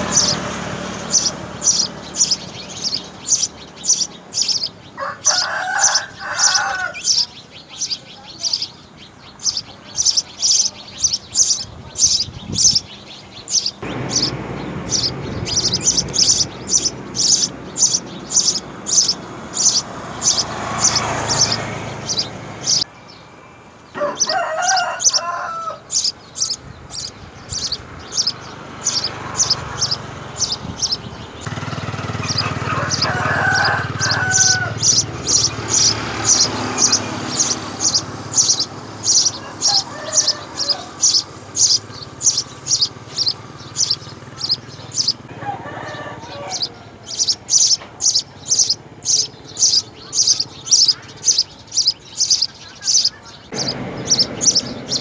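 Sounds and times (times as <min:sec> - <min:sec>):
rooster crowing: 0:00.0 - 0:03.0, 0:04.4 - 0:07.4, 0:13.6 - 0:22.8, 0:23.9 - 0:47.4
small bird chirping: 0:00.0 - 0:23.3, 0:23.9 - 0:45.3, 0:46.2 - 0:55.0.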